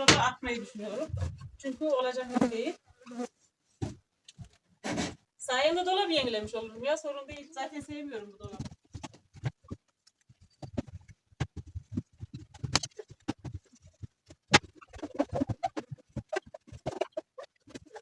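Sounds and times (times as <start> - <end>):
squeaky rubbing: 7.8 - 18.0
knocks and clatters: 8.4 - 18.0.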